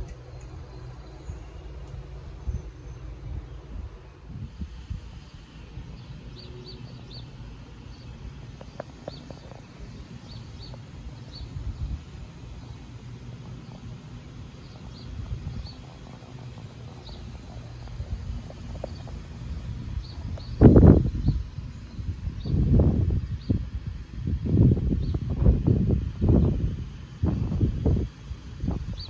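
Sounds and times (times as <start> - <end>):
small birds chirping: 0.0 - 4.3, 5.2 - 23.6
steady low rumbling noise: 0.0 - 29.0.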